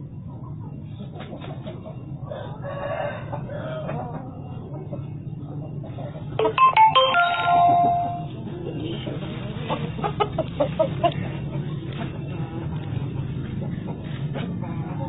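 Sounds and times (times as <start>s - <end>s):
rooster crowing: 2.3s - 4.0s.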